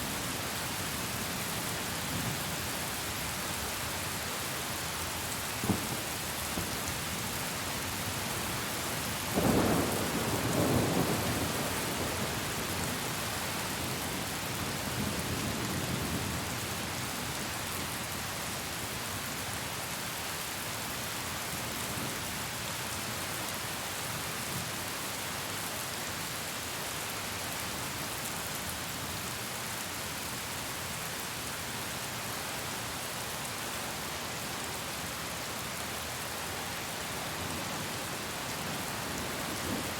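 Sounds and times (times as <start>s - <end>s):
steady rain: 0.0s - 39.9s
thunder rumbling: 5.6s - 7.1s.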